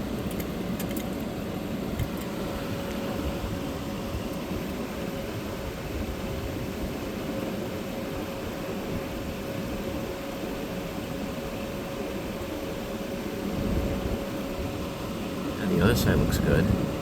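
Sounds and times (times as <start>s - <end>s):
air conditioner fan blowing: 0.0s - 17.0s
compressor running quietly: 0.0s - 17.0s
steady hum: 0.0s - 17.0s.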